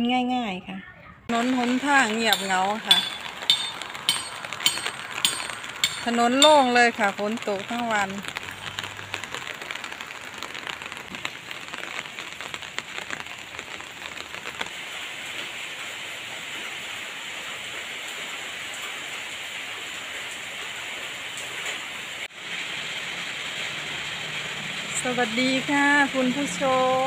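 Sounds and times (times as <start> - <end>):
steady rain: 1.3 - 27.0
sharp drop ticks: 2.3 - 8.1.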